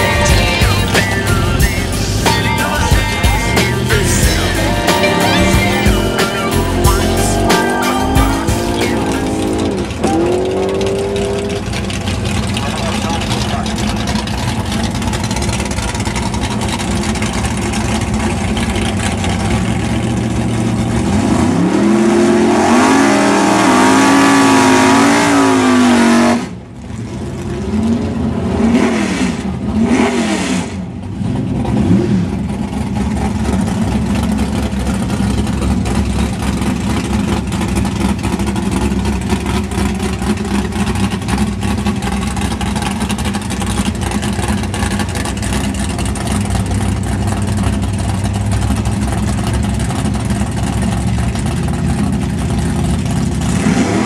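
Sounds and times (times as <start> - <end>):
sharp throttle blips: 0.0 - 12.0
vee eight engines idling: 0.0 - 21.4, 30.8 - 54.0
engine revving and warbling: 0.0 - 54.0.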